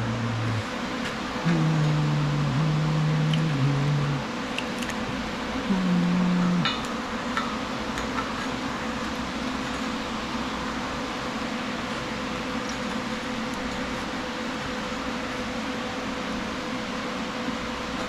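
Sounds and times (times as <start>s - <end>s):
low tone: 0.0s - 0.7s, 1.4s - 4.3s, 5.6s - 6.9s
mechanical fan hum: 0.0s - 18.0s.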